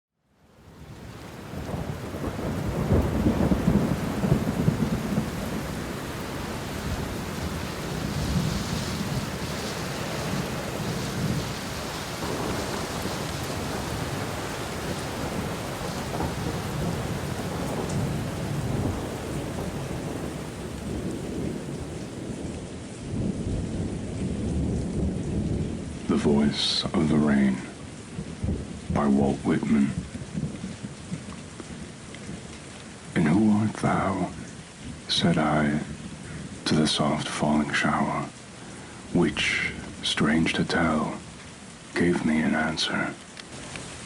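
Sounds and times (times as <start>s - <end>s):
steady rain: 0.2s - 44.0s
low rolling thunder: 0.6s - 32.4s.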